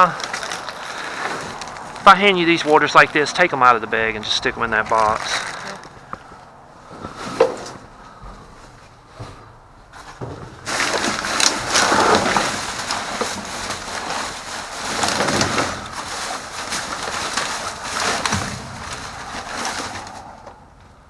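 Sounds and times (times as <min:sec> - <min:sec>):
plastic bags crinkling: 0:00.0 - 0:03.4, 0:04.4 - 0:06.0, 0:10.6 - 0:20.3.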